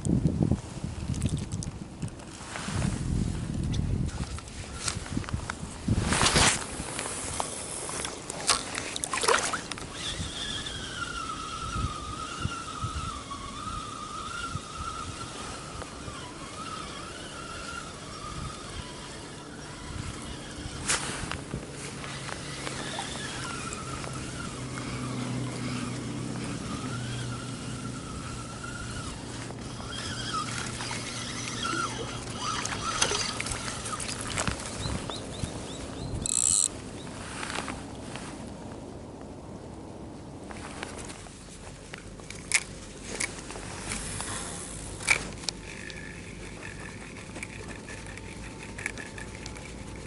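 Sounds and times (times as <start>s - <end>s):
distant outboard motor whining: 6.9s - 50.0s
water splashes: 8.0s - 11.0s, 28.3s - 35.3s.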